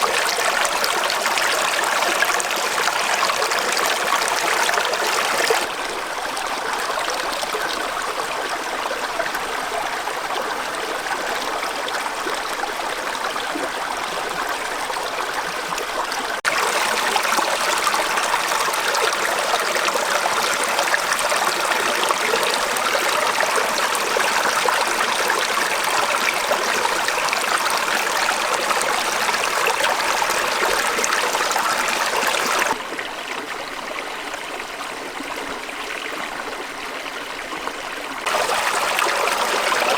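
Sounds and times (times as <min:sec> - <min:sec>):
stream water rushing: 0:00.0 - 0:07.4, 0:16.3 - 0:32.8, 0:38.2 - 0:39.9.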